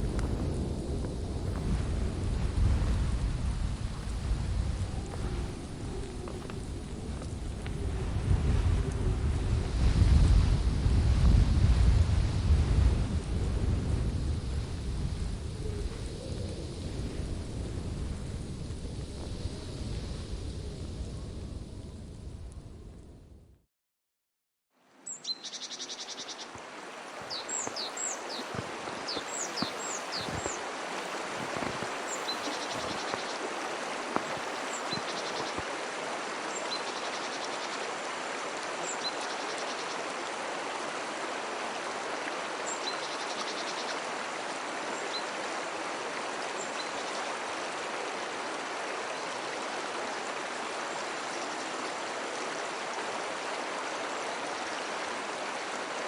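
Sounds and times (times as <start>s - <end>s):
stream flowing: 0.0s - 10.2s, 24.8s - 56.0s
birds chirping: 25.1s - 35.6s.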